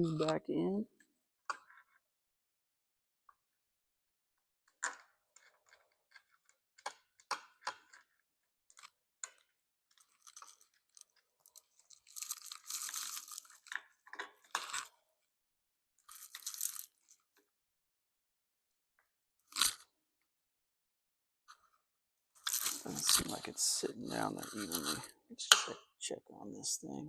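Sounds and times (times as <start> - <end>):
small clicks and scrapes: 1.5 - 2.0, 4.7 - 15.0, 16.0 - 17.5, 19.4 - 19.9, 21.5 - 23.4.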